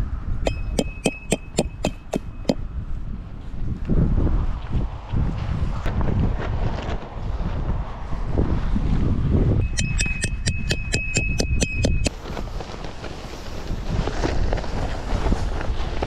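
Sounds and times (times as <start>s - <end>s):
wind buffeting microphone: 0.0s - 16.0s
thin steady high tone: 0.5s - 2.6s, 9.6s - 12.1s.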